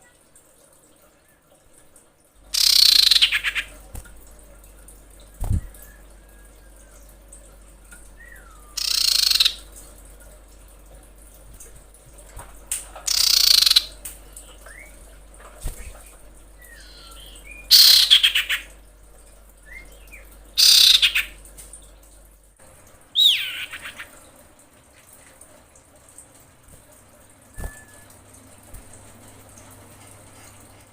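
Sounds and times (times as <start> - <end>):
bird harsh rattling calls: 2.5 - 3.7, 8.8 - 9.7, 13.1 - 14.0, 16.7 - 18.7, 20.6 - 21.4, 23.2 - 24.1
soft short bird chirps: 2.6 - 3.7, 8.2 - 9.6, 16.6 - 18.6, 23.2 - 24.1.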